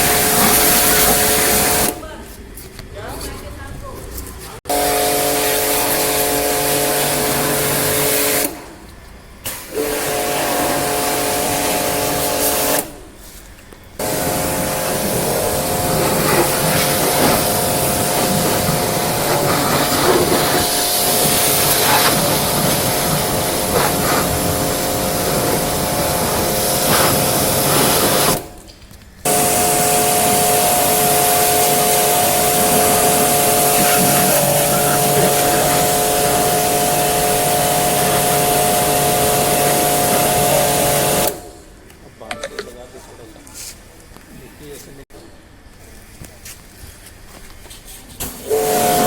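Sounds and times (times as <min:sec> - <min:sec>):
pressure washer spraying water: 0:00.0 - 0:02.0, 0:04.7 - 0:08.6, 0:09.4 - 0:13.0, 0:14.0 - 0:28.6, 0:29.3 - 0:41.5, 0:48.2 - 0:49.0
motor hum: 0:14.0 - 0:28.4, 0:29.3 - 0:41.4.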